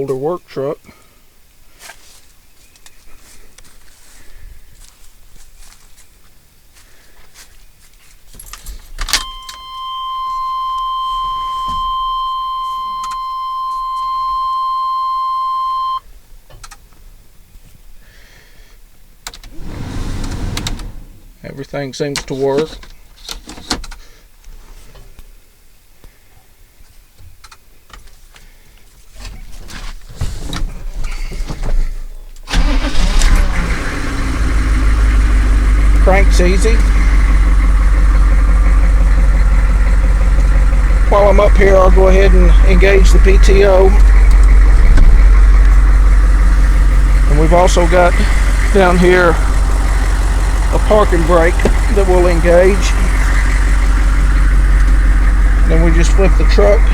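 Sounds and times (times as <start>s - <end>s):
dashboard warning buzzer: 9.2s - 16.0s
diesel engine idling: 9.2s - 16.0s, 19.5s - 21.4s, 32.5s - 56.9s
starter cranking: 32.5s - 34.0s, 40.2s - 56.9s.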